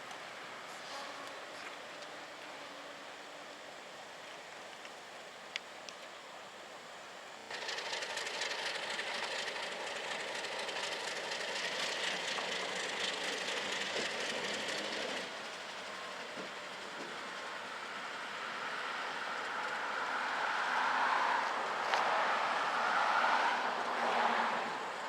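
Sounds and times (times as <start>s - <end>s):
train wheels on rails: 7.5s - 25.0s.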